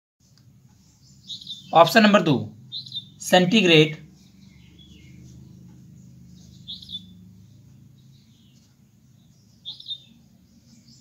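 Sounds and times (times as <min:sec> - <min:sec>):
bird chirping: 0:00.2 - 0:11.0.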